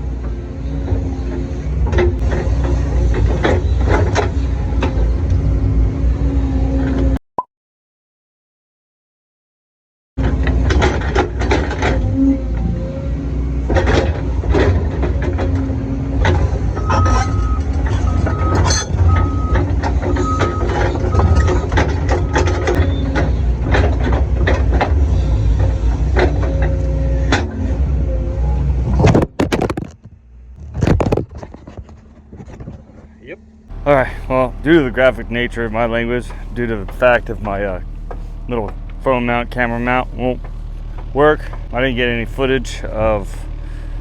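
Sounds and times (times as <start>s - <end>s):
excavator diesel engine rumble: 0.0s - 7.2s, 10.2s - 28.9s, 33.7s - 44.0s
bucket scraping and knocking rocks: 29.2s - 30.0s, 30.6s - 32.0s.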